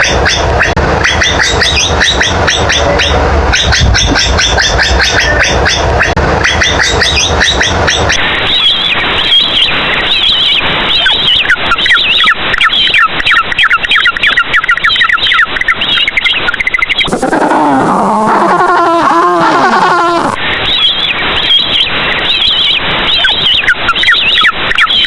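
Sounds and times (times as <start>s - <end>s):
low sliding animal calls: 0.0s - 8.2s, 17.1s - 20.4s
rapid high animal chirping: 0.0s - 8.7s, 13.6s - 20.4s.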